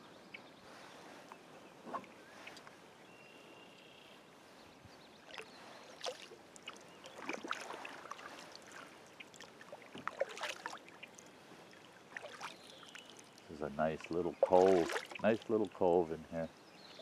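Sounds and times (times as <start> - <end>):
water sloshing around kayak: 5.1 - 15.8.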